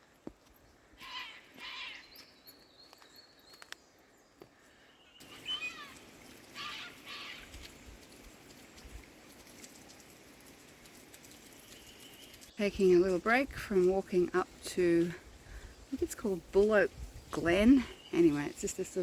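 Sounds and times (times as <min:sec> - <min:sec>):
short wavering animal calls: 0:01.0 - 0:02.1, 0:05.2 - 0:07.6.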